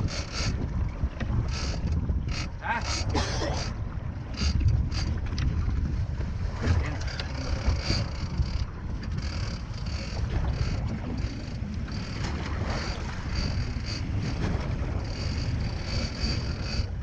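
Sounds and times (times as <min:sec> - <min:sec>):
boat engine rumble: 0:00.0 - 0:17.0
wind buffeting microphone: 0:00.0 - 0:17.0.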